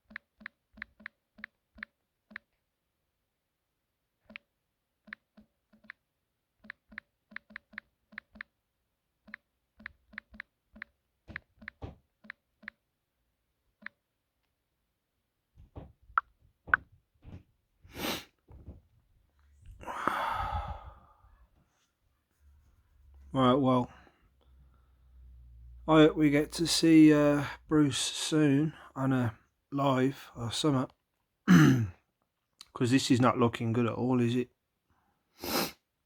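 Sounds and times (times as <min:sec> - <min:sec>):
keyboard typing clicks: 0:00.0 - 0:02.5, 0:06.6 - 0:08.5, 0:09.2 - 0:12.8.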